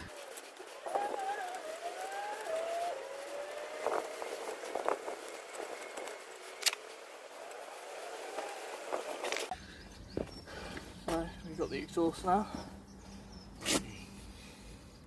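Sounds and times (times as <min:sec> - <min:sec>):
distant vehicle engine accelerating: 0:00.0 - 0:11.0.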